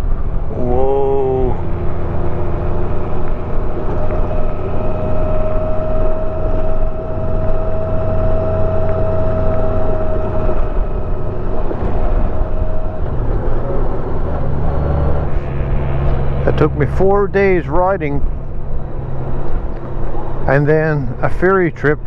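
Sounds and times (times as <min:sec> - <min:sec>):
motorcycle engine running: 0:00.0 - 0:22.0
thin steady whine: 0:00.0 - 0:22.0
wind rush: 0:01.6 - 0:21.2.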